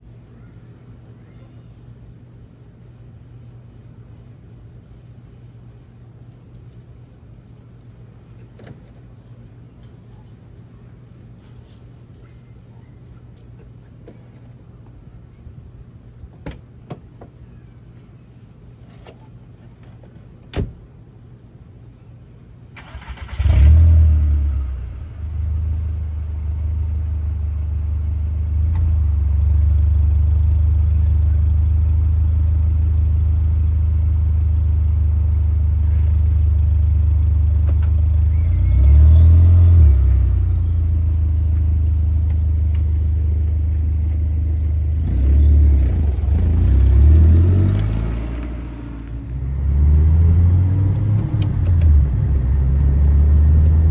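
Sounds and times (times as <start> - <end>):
engine revving: 22.8 - 25.2, 38.3 - 41.2, 43.9 - 53.9
car engine starting: 22.8 - 53.9
car engine idling: 24.4 - 49.8.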